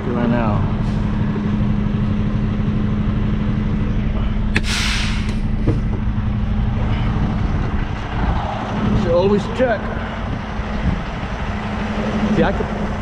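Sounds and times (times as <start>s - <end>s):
truck diesel engine idling: 0.0s - 13.0s
air hissing: 4.5s - 5.9s.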